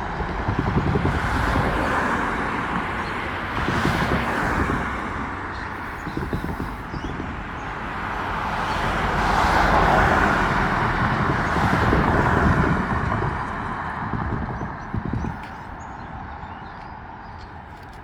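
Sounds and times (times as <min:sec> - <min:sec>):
low rumble with quick knocks: 0:11.0 - 0:15.7.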